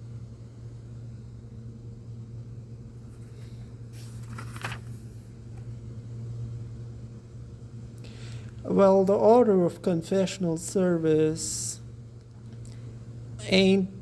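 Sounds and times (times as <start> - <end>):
low background hum: 0.0 - 14.0
soft rustle: 3.0 - 5.2.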